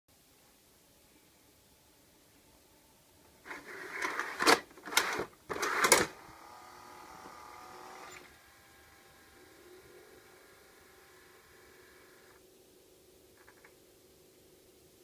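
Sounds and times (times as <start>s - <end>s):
faint mechanism whine: 0.2s - 15.0s
disc caddy scraping in slot: 3.5s - 6.2s.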